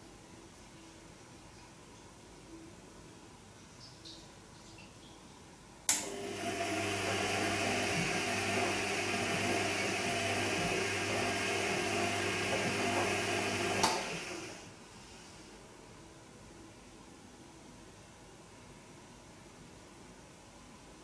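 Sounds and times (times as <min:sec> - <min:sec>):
switch click: 0:05.9 - 0:06.1
washing machine pump humming: 0:05.9 - 0:15.6.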